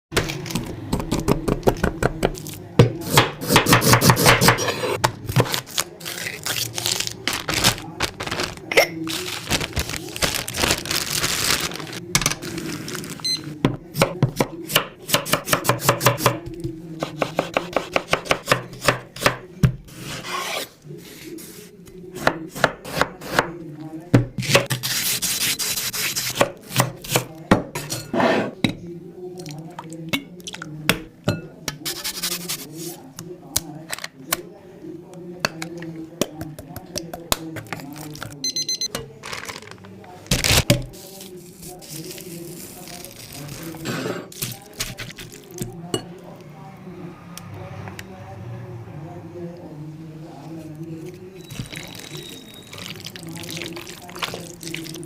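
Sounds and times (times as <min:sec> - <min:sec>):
knife chopping on cutting board: 0:17.0 - 0:20.6.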